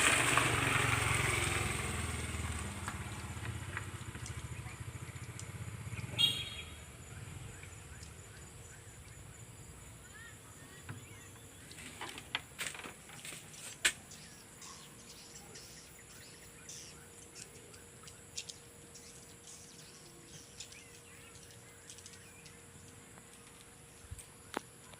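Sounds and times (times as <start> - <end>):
low motor rumble: 0.0 - 10.1.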